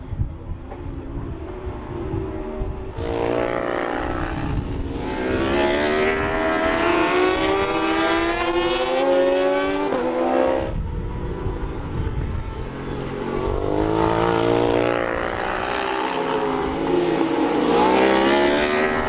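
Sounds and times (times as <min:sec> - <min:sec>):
motorcycle engine accelerating: 0:01.2 - 0:19.0.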